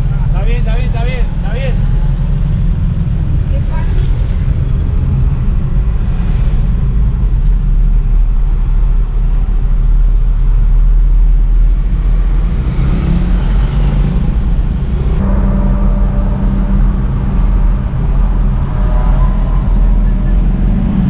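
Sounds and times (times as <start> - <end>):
vehicle engine and road noise: 0.0 - 21.0
higher-pitched noise: 15.2 - 21.0.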